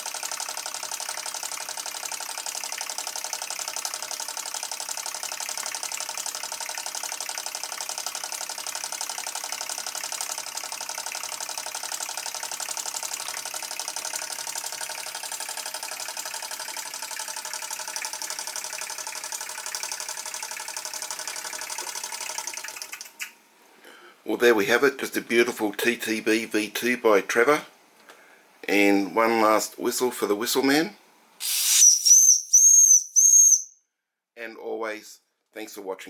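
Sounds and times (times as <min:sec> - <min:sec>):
steam engine chuffing: 0:00.0 - 0:23.2
steam hissing: 0:31.4 - 0:32.3.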